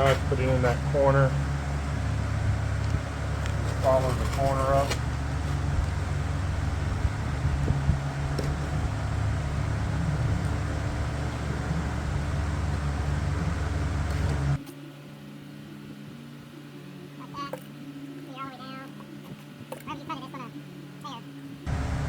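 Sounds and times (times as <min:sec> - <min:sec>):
machine humming: 0:00.0 - 0:14.6, 0:21.7 - 0:22.0.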